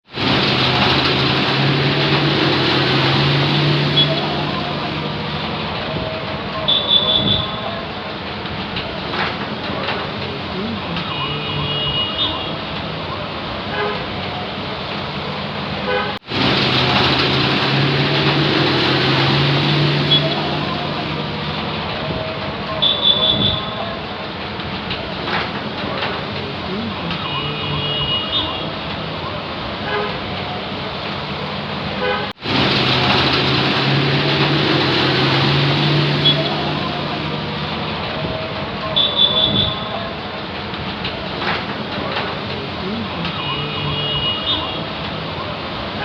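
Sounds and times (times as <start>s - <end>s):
wet tyres on road: 0.0s - 46.0s
hiss of passing vehicles: 0.1s - 6.5s, 12.5s - 22.7s, 28.4s - 38.8s
high horn beep: 3.8s - 4.4s, 6.6s - 7.6s, 19.9s - 20.6s, 27.2s - 28.7s
vehicle horn: 15.8s - 16.2s, 32.0s - 32.4s, 43.4s - 44.8s.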